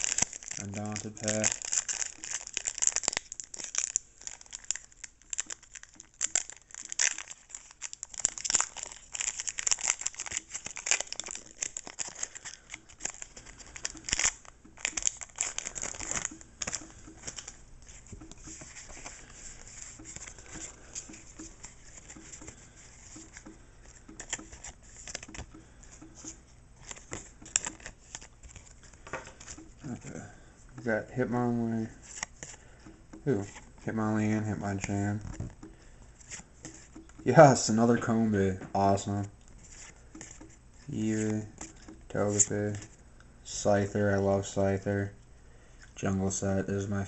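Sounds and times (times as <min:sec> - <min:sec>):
plastic wrapper tearing and crinkling: 0:00.0 - 0:22.5, 0:26.8 - 0:30.2
cards rustling: 0:00.0 - 0:44.5.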